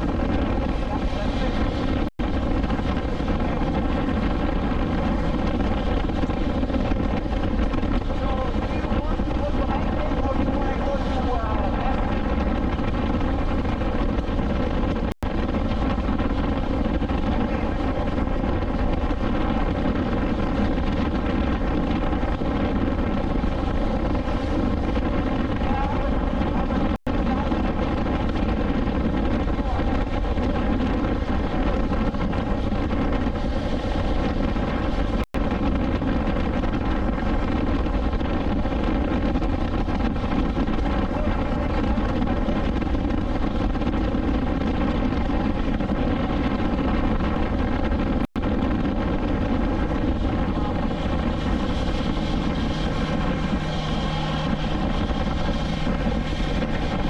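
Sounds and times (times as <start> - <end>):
wind rush: 0.0 - 57.0
motorcycle engine cruising: 48.5 - 57.0.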